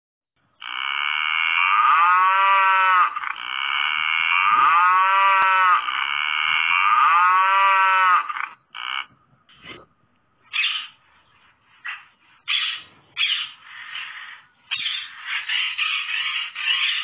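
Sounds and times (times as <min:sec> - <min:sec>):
cow mooing: 0:00.6 - 0:09.1.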